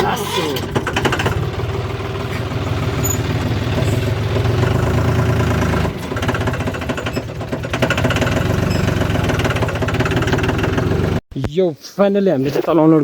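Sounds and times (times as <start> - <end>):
tractor engine running: 0.0 - 11.2.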